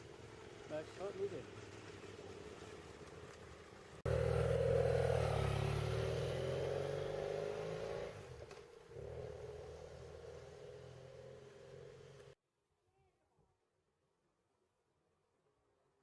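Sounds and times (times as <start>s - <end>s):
motorcycle engine running: 4.1s - 6.9s.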